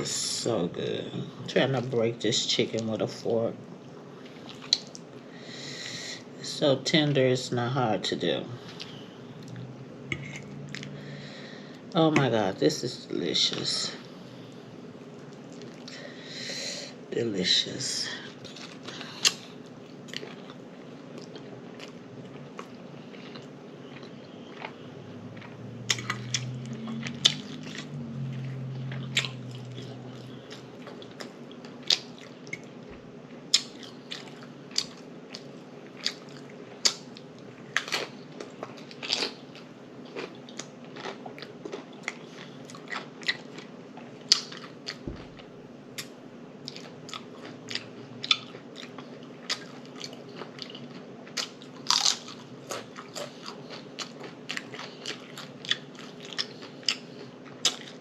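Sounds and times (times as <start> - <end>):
close-up chewing and crunching: 4.2 - 5.1, 18.3 - 58.0.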